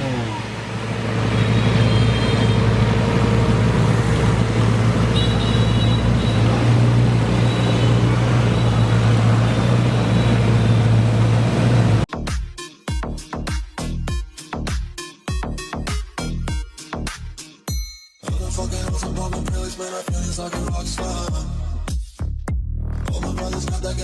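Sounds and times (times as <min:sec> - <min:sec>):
car engine droning: 0:00.0 - 0:12.1
road and traffic noise: 0:00.0 - 0:12.1.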